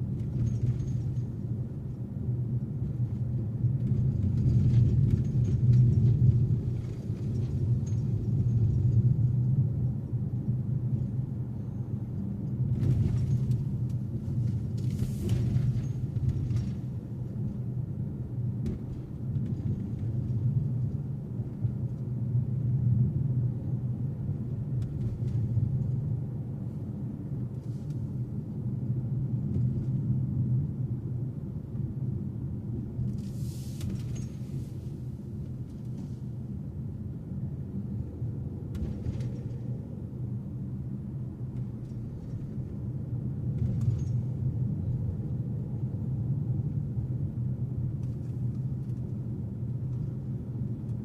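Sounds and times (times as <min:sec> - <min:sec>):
car road and engine noise: 0:00.0 - 0:51.0.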